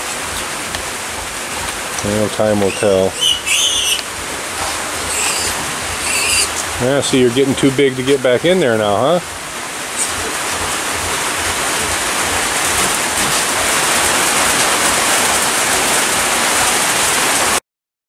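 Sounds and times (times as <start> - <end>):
steady rain falling: 0.0 - 17.6.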